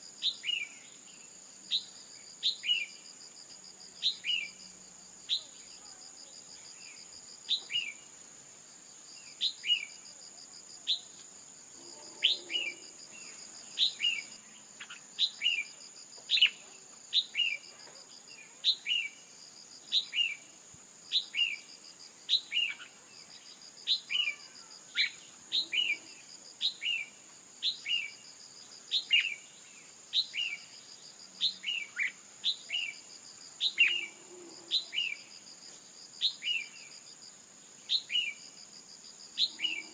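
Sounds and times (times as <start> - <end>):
high insect drone: 0.0 - 39.9
bird chirping: 11.8 - 17.6, 33.6 - 35.3.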